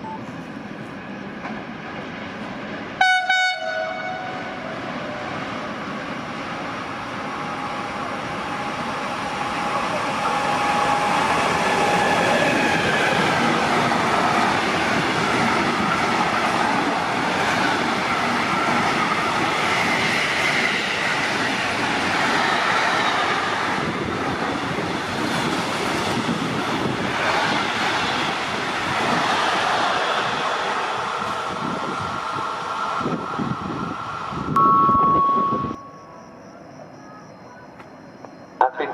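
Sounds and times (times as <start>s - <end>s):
train wheels rushing on rails: 0.0s - 34.6s
high metallic whine: 34.6s - 36.4s.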